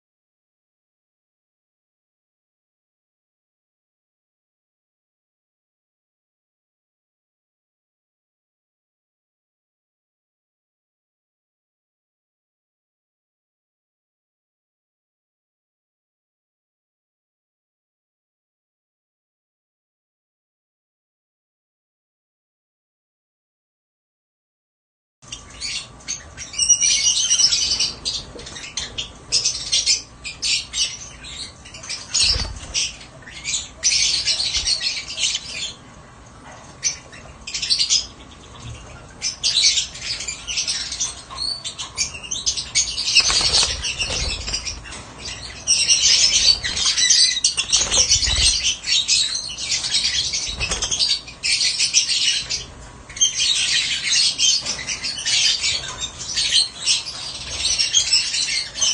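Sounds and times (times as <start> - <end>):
lovebirds chirping and squawking: 25.3 - 58.9.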